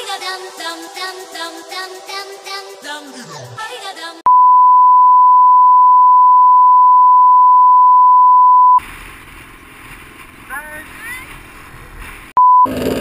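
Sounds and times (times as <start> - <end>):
music: 0.0 - 4.2
steady electronic beep: 4.3 - 8.8
outdoor background noise: 8.8 - 13.0.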